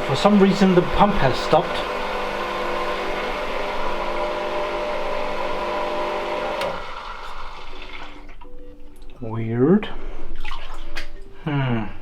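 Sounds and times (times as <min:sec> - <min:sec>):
electric water pump motor humming: 0:00.0 - 0:08.5.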